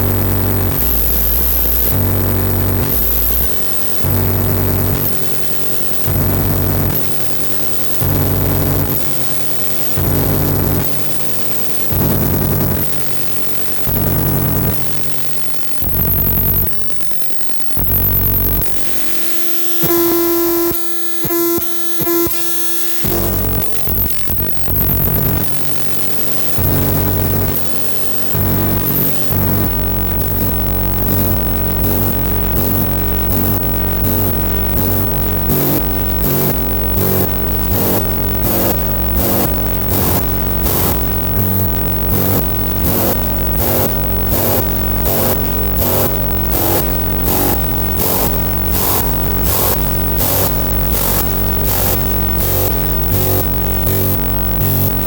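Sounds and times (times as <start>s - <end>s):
low synth drone: 28.4s - 55.0s.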